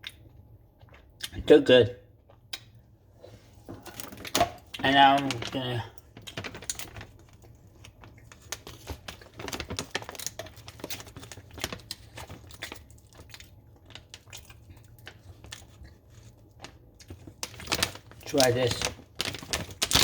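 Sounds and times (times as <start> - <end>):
plastic packaging crinkling: 3.8 - 20.0
bag tearing open: 17.4 - 20.0.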